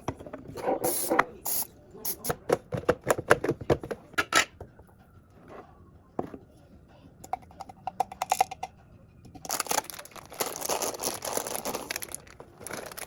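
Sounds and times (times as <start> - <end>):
crinkling rustle: 9.5 - 13.0.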